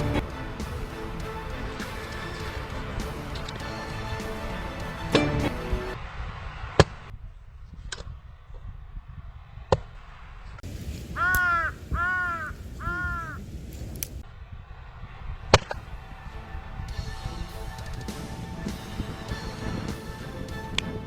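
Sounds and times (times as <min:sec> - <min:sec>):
crow cawing: 0:11.2 - 0:13.4.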